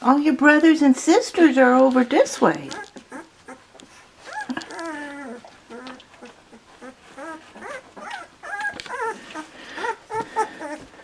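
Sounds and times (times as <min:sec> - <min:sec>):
puppy whining: 0:02.6 - 0:11.0
puppy squeaky cries: 0:02.7 - 0:10.9.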